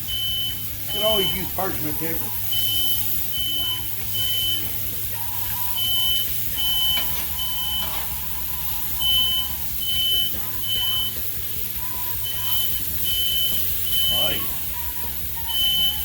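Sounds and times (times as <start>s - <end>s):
burgers sizzling on griddle: 0.0s - 16.0s
smoke alarm beeping: 0.0s - 16.0s.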